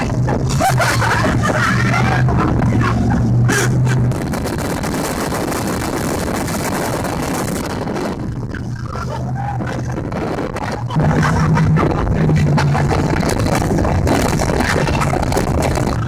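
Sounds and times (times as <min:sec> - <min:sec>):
speedboat engine hum: 0:00.0 - 0:16.0.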